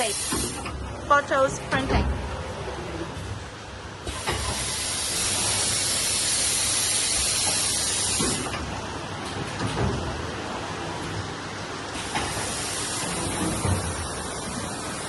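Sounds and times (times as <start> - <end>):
loud steady hiss: 0.0 - 0.7, 4.0 - 8.6, 11.9 - 15.0.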